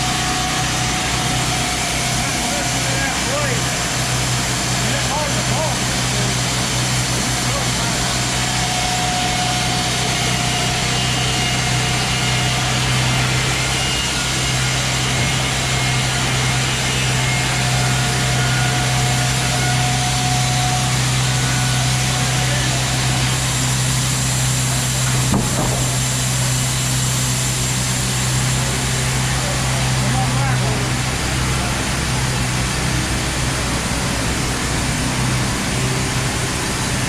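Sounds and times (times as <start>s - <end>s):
band sawmill cutting a log: 0.0s - 37.0s
diesel engine humming: 0.0s - 37.0s
short knock: 25.3s - 26.1s.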